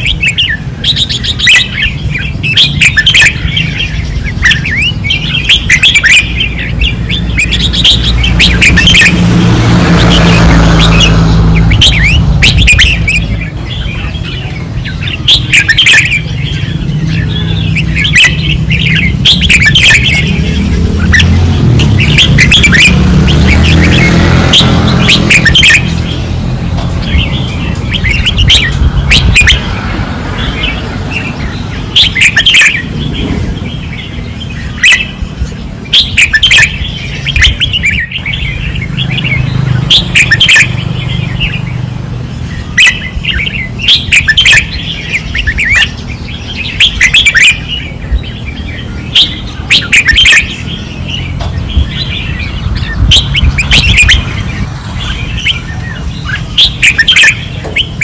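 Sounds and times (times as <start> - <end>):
bird whistled song phrases: 0.0 - 9.2, 10.0 - 26.3, 30.4 - 58.0
steady low rumble: 24.7 - 32.0.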